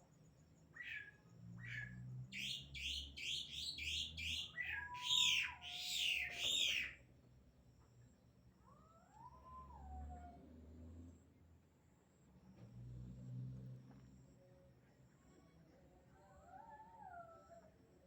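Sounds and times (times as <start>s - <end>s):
bird calling with sharp chirps: 0.8s - 7.0s.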